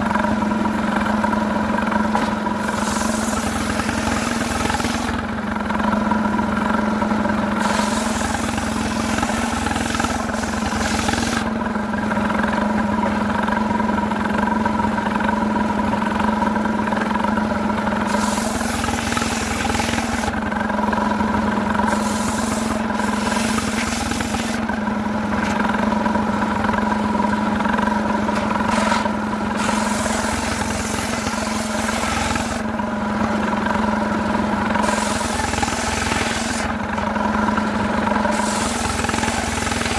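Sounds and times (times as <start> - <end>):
chainsaw cutting wood: 2.2 - 5.2, 7.6 - 11.5, 18.1 - 20.4, 21.8 - 24.7, 28.4 - 32.7, 34.8 - 37.1, 38.2 - 39.9.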